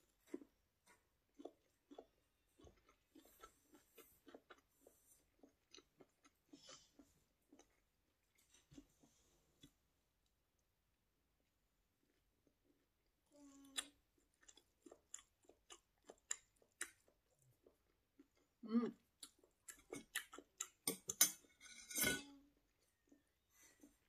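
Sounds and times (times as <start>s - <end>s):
chewing and mouth smacks: 0.1s - 9.8s, 13.8s - 21.1s.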